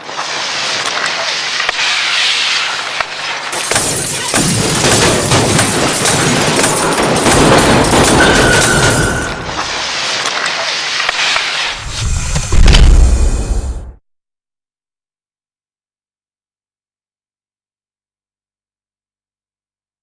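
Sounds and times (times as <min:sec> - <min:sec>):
fireworks banging and crackling: 0:00.0 - 0:14.0
deep firework boom: 0:11.7 - 0:14.0.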